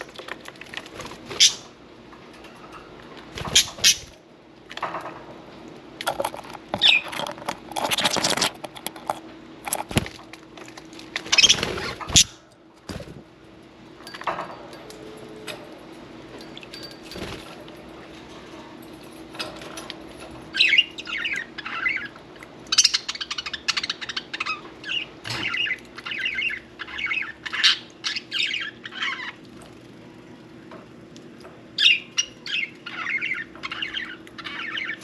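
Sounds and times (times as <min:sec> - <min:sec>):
bird chirp: 0:20.5 - 0:29.4, 0:31.8 - 0:35.0.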